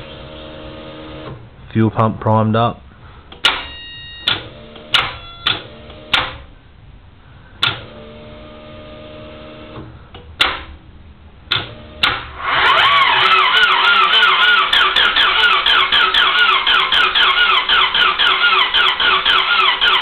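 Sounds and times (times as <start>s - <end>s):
faint steady hum: 0.0s - 12.1s
car starter clicking: 11.5s - 20.0s.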